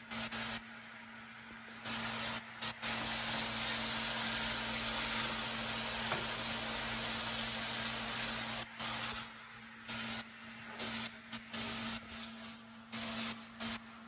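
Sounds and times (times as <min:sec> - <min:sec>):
potatoes sizzling in a pan: 0:00.0 - 0:14.0.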